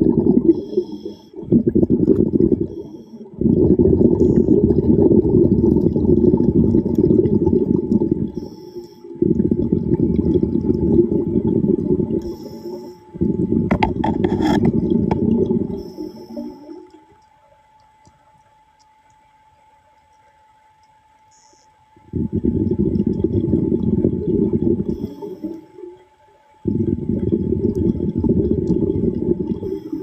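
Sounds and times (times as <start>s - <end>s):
exhaled bubbles rushing underwater: 0.0s - 17.7s, 21.9s - 30.0s
hissing inhalations through regulator: 0.4s - 5.7s, 7.3s - 9.4s, 11.8s - 17.0s, 21.3s - 25.9s, 26.6s - 30.0s.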